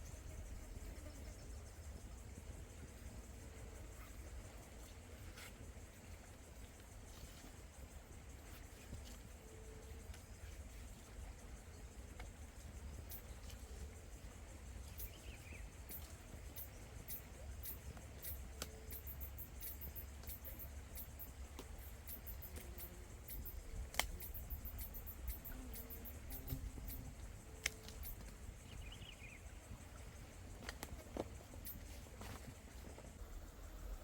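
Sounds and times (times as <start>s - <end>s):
birds chirping: 14.9s - 29.7s.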